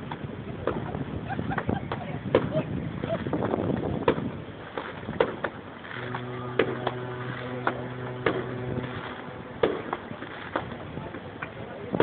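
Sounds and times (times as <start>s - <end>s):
fireworks bangs: 3.2s - 12.0s
ship's horn low blast: 5.7s - 12.0s.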